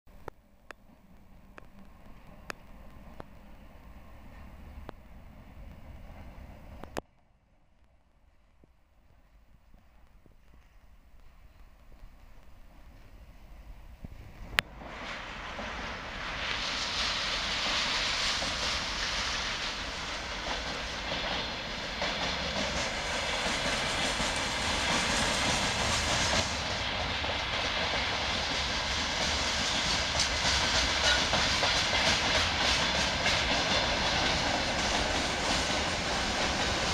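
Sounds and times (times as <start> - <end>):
steel wheels rushing on rails: 9.2 - 36.9.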